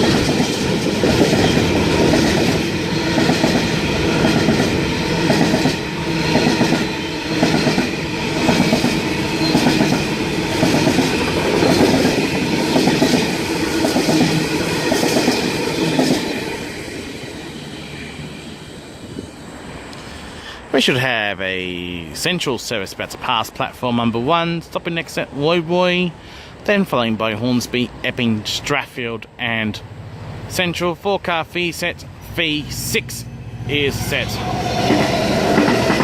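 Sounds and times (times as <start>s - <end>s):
train wheels clacking over rail joints: 0.0s - 16.5s, 34.7s - 36.0s.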